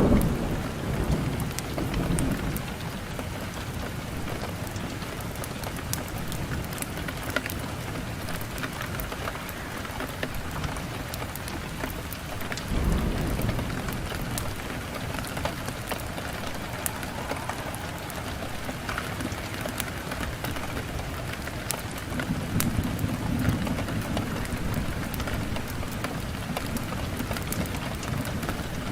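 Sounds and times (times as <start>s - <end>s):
low rumble of fire: 0.0s - 28.9s
fire crackling and popping: 4.2s - 28.9s
hiss of fire flames: 12.5s - 21.0s.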